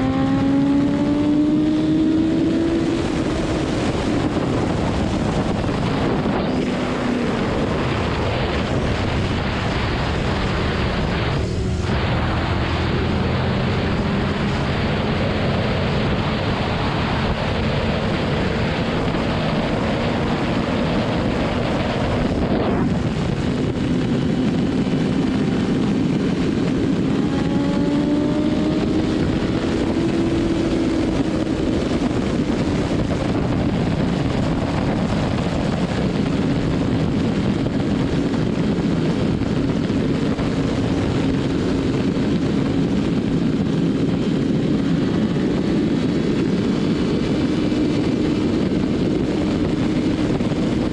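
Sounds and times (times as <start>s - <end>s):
motorcycle engine cruising: 0.0s - 50.9s
wind rush: 0.0s - 50.9s.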